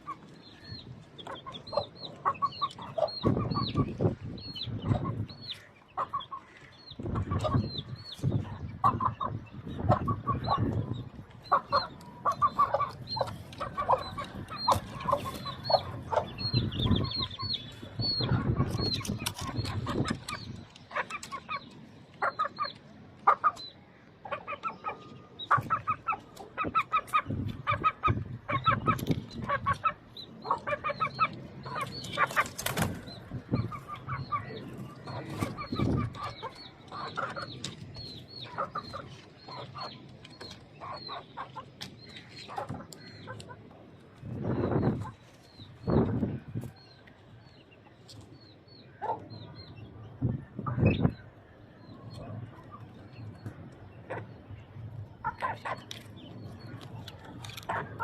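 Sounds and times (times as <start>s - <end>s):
chickens clucking: 0.0s - 58.0s.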